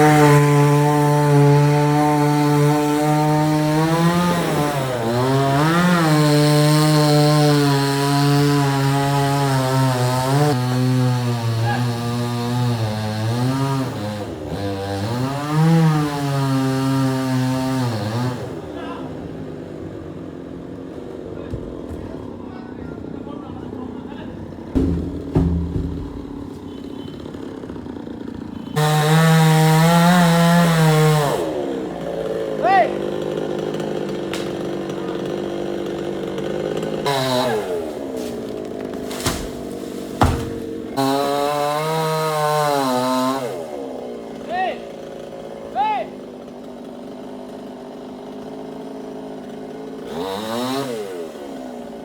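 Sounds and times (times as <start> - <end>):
chainsaw cutting wood: 0.0 - 18.8, 24.5 - 52.0.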